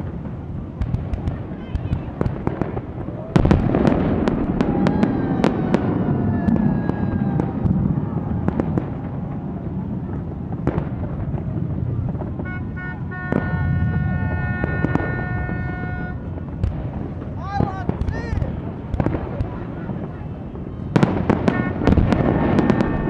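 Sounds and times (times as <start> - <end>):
fireworks bangs: 0.0 - 23.0
long steady horn tone: 12.3 - 16.4, 21.3 - 23.0.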